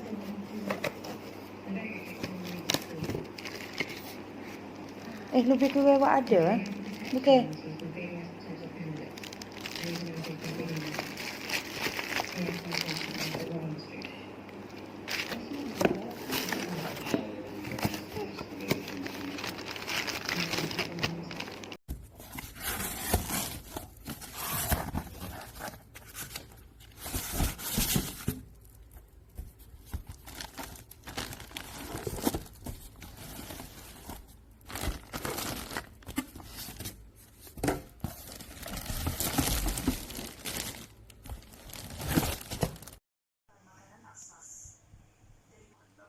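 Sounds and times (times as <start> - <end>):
packaging crinkling and tearing: 2.2 - 7.6, 8.9 - 13.6, 14.7 - 29.0, 29.8 - 43.0.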